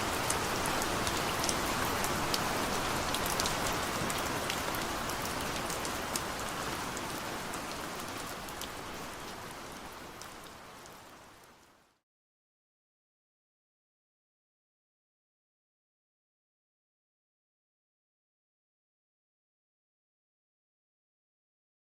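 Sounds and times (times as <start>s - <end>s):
raindrops ticking nearby: 0.0s - 12.0s.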